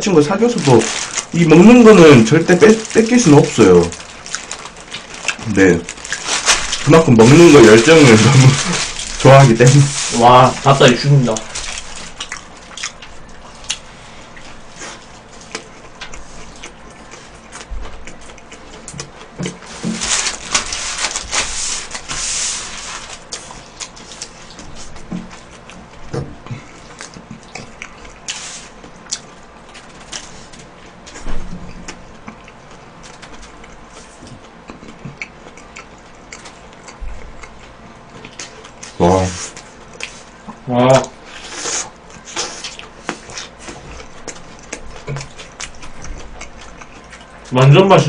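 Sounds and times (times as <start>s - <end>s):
chewing with wet mouth clicks: 11.7s - 14.6s, 15.3s - 19.6s, 26.6s - 29.9s, 31.8s - 39.0s, 42.0s - 47.5s.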